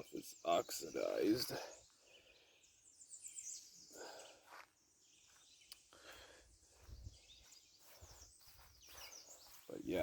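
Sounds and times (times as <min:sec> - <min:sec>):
high bird chirps: 0:06.8 - 0:10.0.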